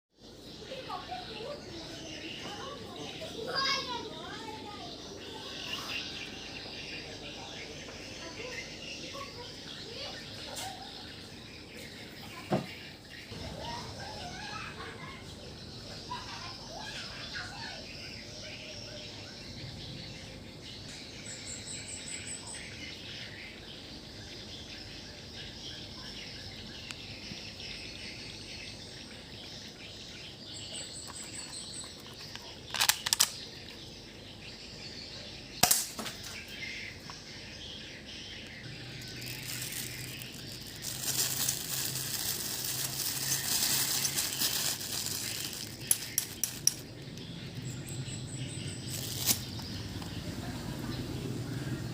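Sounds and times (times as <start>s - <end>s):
outdoor background noise: 0.1s - 51.9s
quick clicks: 32.0s - 33.4s
rough noise: 38.9s - 47.0s.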